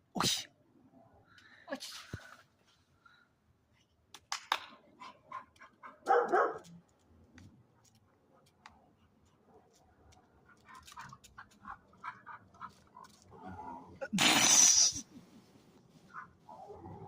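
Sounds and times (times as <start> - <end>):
dog barking: 5.3 - 6.7.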